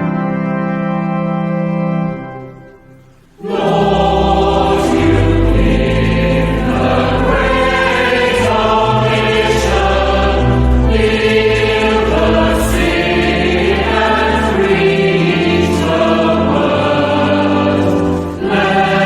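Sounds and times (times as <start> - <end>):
instrumental hymn introduction: 0.0 - 19.0
choir singing with accompaniment: 3.4 - 19.0.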